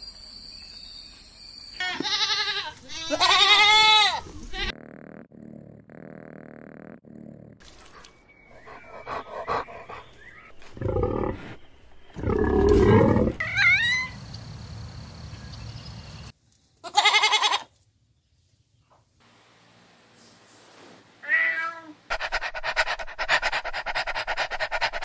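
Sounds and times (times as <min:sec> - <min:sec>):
goat bleating: 0:01.8 - 0:04.8, 0:16.8 - 0:17.7
soft animal noises: 0:01.8 - 0:14.1, 0:22.1 - 0:25.0
pig grunting: 0:08.6 - 0:11.6.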